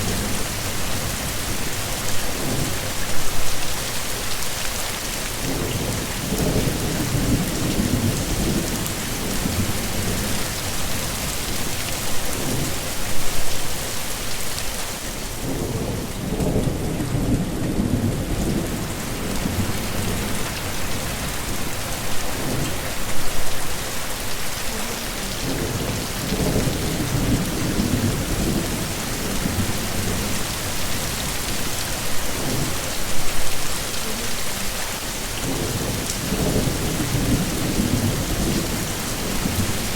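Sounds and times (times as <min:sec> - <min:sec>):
heavy rain falling: 0:00.0 - 0:39.9
rolling thunder: 0:05.4 - 0:11.8, 0:15.4 - 0:23.6, 0:25.4 - 0:33.5, 0:35.4 - 0:39.9.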